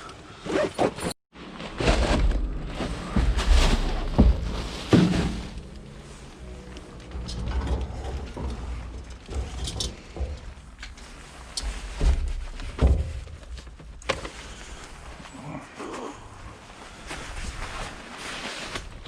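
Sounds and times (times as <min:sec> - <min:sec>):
dull thuds of scrap: 0:00.8 - 0:06.3
low rumble: 0:01.6 - 0:15.5.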